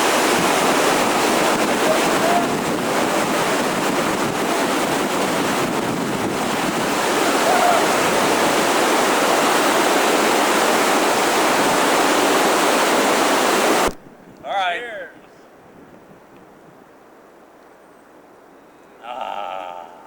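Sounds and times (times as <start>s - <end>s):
whitewater rapids rushing: 0.0s - 13.9s.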